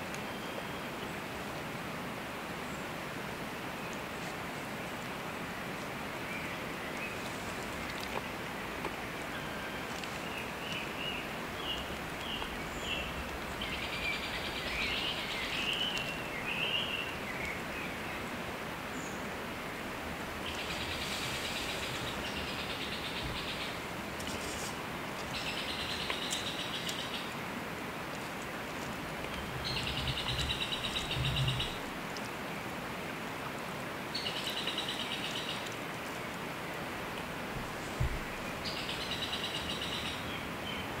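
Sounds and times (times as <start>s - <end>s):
steady hiss: 0.9s - 41.0s
songbirds chirping and trilling: 5.6s - 32.7s, 34.1s - 41.0s
low thuds: 37.6s - 38.5s.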